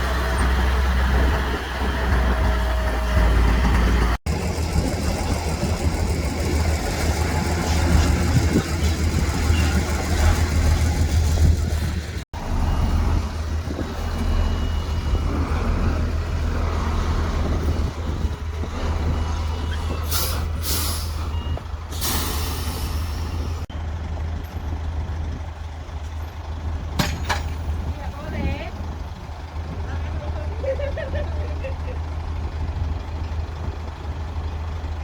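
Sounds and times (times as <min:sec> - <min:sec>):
heavy diesel engines running: 0:00.0 - 0:35.0
air brakes hissing: 0:19.7 - 0:23.7.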